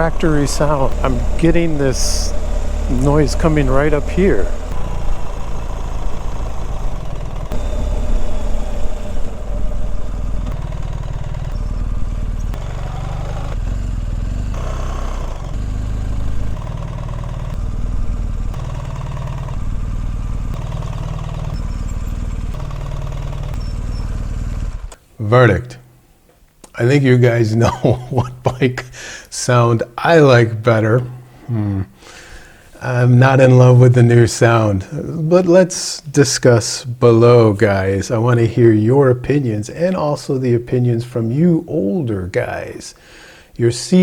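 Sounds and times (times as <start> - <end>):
motorcycle engines idling: 0.0 - 25.1, 26.8 - 35.1, 42.9 - 44.0.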